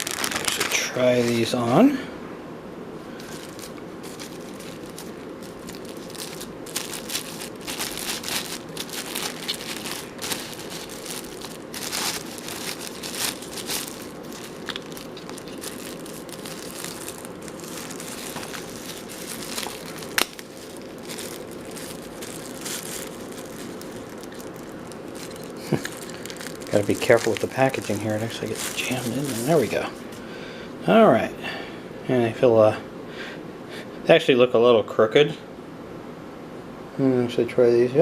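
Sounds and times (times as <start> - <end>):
packaging crinkling: 0.0 - 1.5, 3.2 - 30.2.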